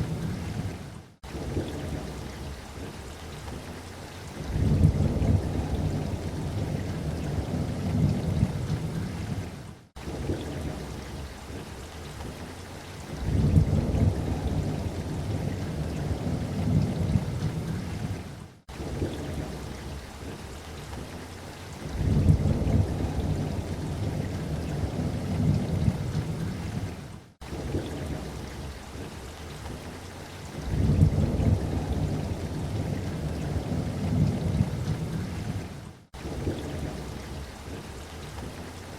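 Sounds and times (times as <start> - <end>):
light rain: 0.0 - 38.9
rolling thunder: 4.5 - 9.5, 13.2 - 19.9, 21.9 - 29.1, 30.6 - 37.8.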